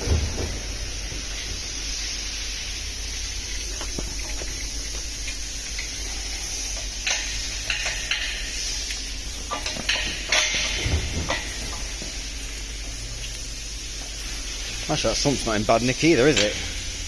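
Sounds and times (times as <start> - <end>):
steady low hum: 0.0 - 17.0
light metal clanks and knocks: 3.6 - 13.0, 16.2 - 16.8.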